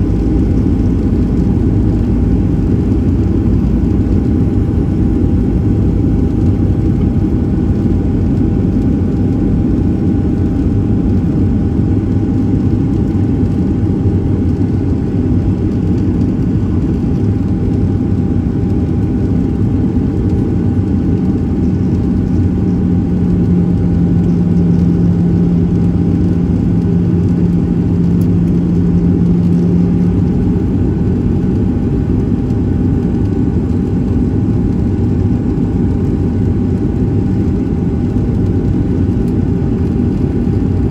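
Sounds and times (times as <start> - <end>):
aircraft engine rumble: 0.0 - 40.9
faint hum: 0.0 - 40.9
low drone: 0.0 - 40.9.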